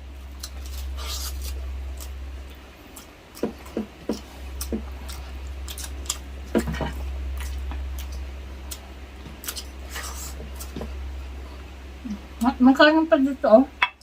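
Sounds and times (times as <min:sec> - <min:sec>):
steady low hum: 0:00.0 - 0:14.0
chewing with wet smacks: 0:00.4 - 0:11.0.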